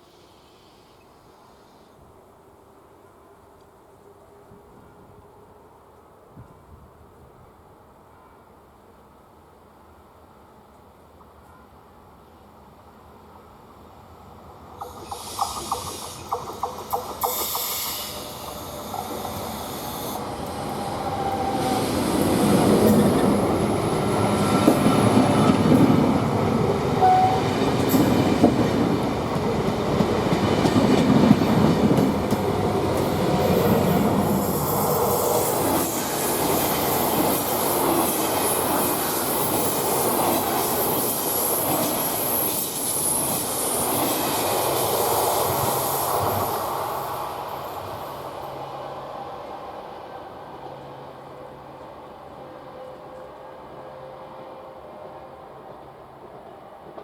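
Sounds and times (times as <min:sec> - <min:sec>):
train wheels on rails: 0:14.6 - 0:51.3, 0:52.9 - 0:57.0
wheel squeal on rail: 0:14.8 - 0:23.0, 0:23.9 - 0:26.2, 0:27.0 - 0:28.1, 0:34.2 - 0:44.2.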